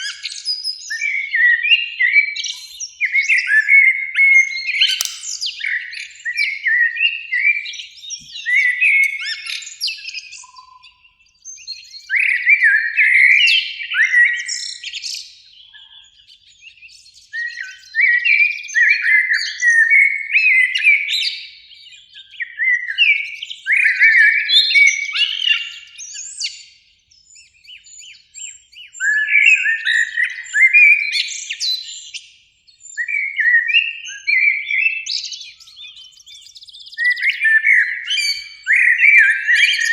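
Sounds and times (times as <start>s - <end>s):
blackbird singing: 4.4s - 5.4s, 21.7s - 39.9s.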